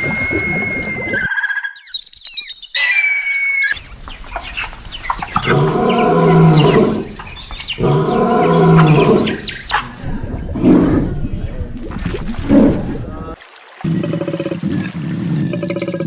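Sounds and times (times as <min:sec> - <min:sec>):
animal long loud calls: 0:05.4 - 0:07.2, 0:07.8 - 0:09.9.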